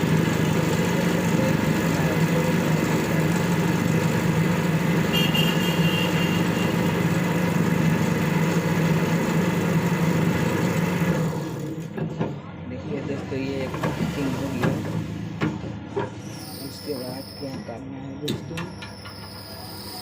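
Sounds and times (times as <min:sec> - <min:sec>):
coil-winding machine humming: 0:00.0 - 0:11.6.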